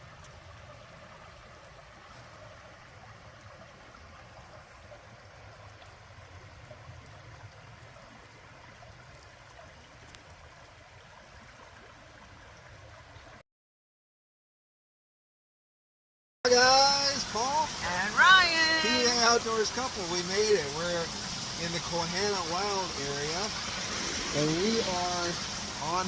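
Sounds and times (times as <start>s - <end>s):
waterfall rushing: 16.5s - 26.0s.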